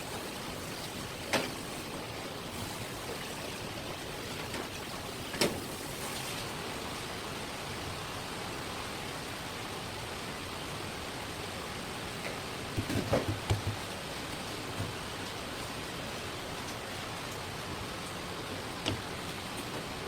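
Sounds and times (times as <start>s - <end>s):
steady hiss: 0.0s - 12.8s
quick knocks: 12.8s - 13.8s.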